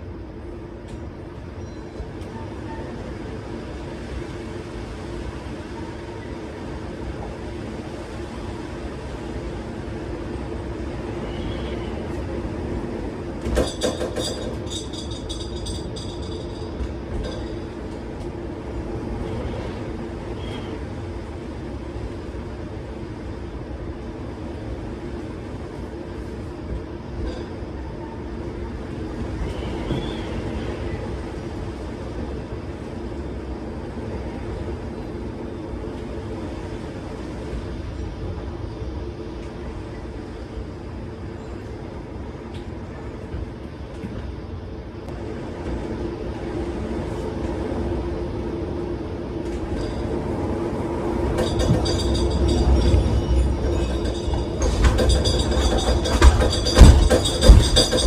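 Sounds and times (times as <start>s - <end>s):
metal rattling and clattering: 51.4s - 58.0s.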